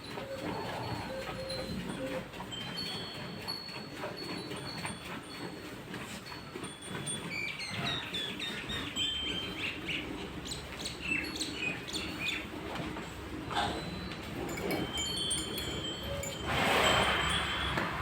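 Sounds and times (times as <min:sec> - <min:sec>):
small birds chirping: 0:07.3 - 0:12.5.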